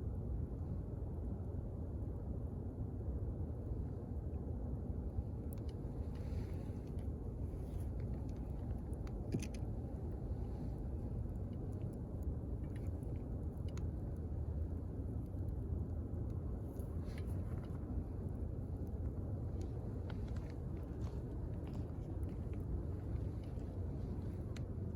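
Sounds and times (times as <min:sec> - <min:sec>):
campfire flame rumbling: 0:00.4 - 0:24.9
burning wood popping and crackling: 0:16.2 - 0:24.9.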